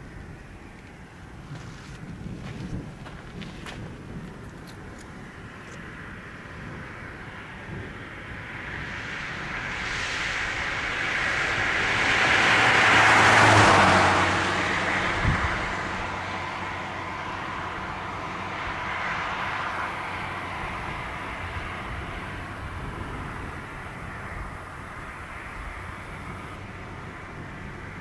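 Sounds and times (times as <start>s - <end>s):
vehicle passing by: 7.2s - 28.0s.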